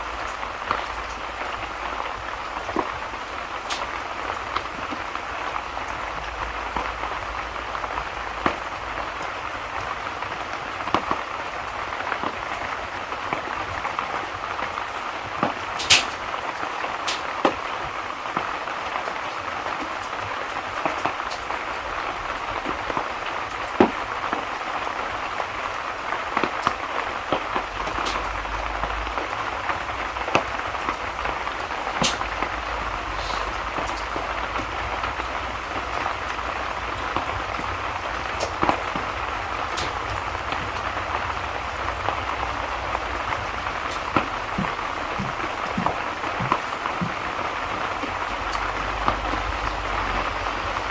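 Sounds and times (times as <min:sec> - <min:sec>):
steady rain falling: 0:00.0 - 0:50.9
sharp pops: 0:15.8 - 0:16.2, 0:31.9 - 0:34.3.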